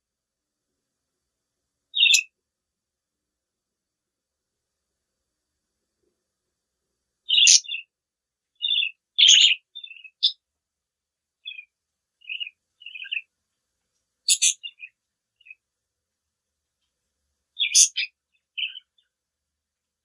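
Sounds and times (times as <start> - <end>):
budgerigars chirping: 2.0 - 2.3, 7.3 - 7.9, 8.6 - 10.4, 11.4 - 13.3, 14.3 - 15.6, 17.6 - 19.1.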